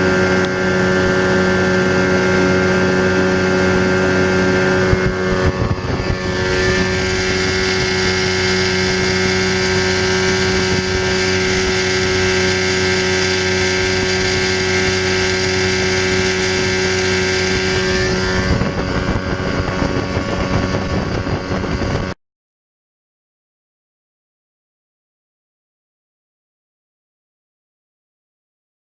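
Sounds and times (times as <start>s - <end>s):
boat engine running: 0.0s - 22.2s
wind on microphone: 0.0s - 22.2s.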